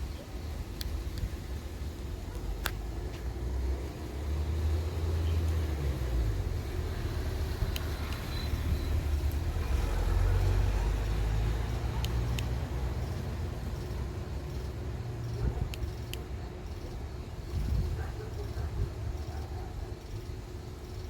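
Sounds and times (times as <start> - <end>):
car engine running: 0.5 - 21.0
sharp clicks: 0.7 - 1.4, 2.3 - 3.2, 7.4 - 9.5, 10.4 - 17.8.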